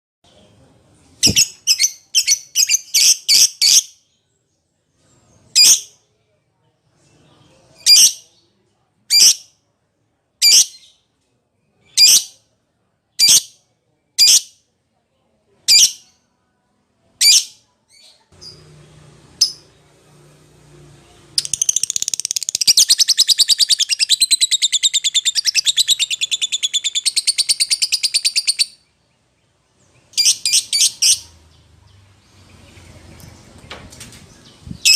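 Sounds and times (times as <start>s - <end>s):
lovebird chattering trill: 21.4s - 28.8s.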